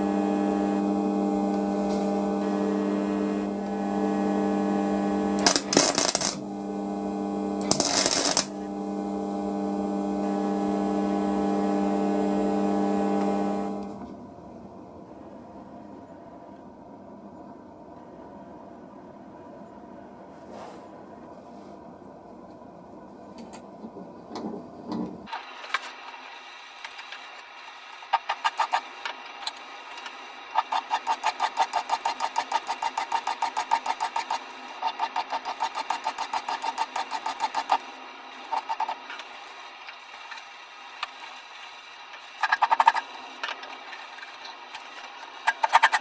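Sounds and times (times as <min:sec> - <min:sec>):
hand tool strokes on wood: 0:01.5 - 0:06.4, 0:28.1 - 0:39.7.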